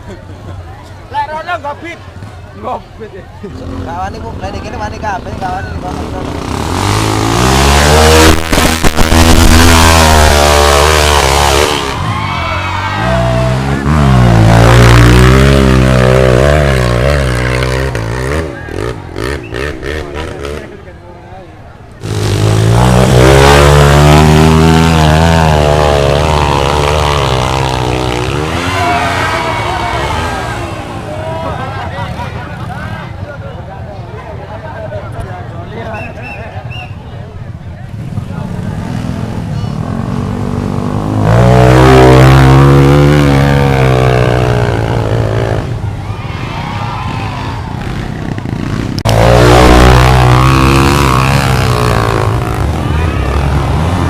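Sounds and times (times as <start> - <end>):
motorcycle engine revving: 3.4 - 12.1, 12.9 - 21.0, 22.0 - 32.8, 37.9 - 46.0, 47.0 - 54.0.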